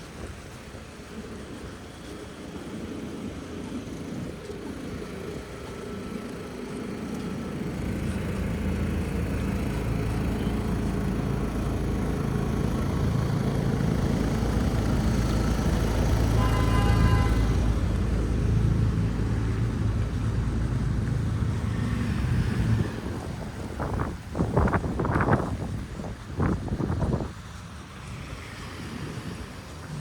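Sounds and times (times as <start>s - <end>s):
vehicle engines rumbling: 0.0s - 30.0s
car horn: 16.3s - 17.8s.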